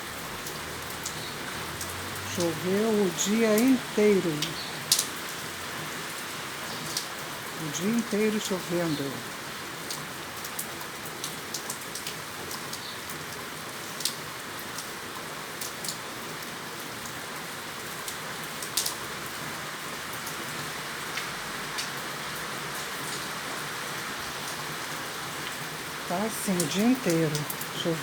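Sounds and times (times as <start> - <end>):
steady rain hiss: 0.0 - 28.0
water drip ticks: 0.4 - 13.3, 13.9 - 15.0, 18.0 - 19.1, 21.1 - 22.0, 25.4 - 28.0.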